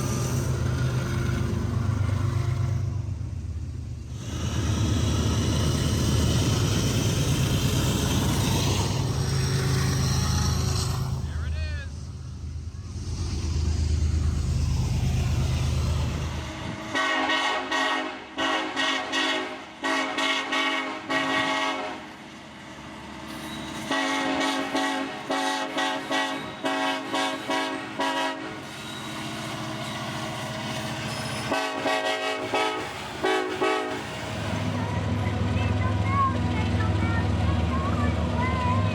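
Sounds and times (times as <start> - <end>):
diesel locomotive engine rumble: 0.0 - 38.9
locomotive air horn blasts: 16.9 - 22.1, 23.9 - 28.6, 31.5 - 34.7.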